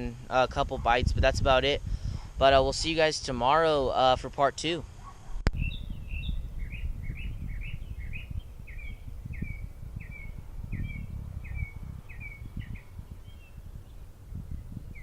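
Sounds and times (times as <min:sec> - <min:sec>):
low rumble of wind: 0:00.0 - 0:15.0
songbird chirping: 0:05.5 - 0:15.0.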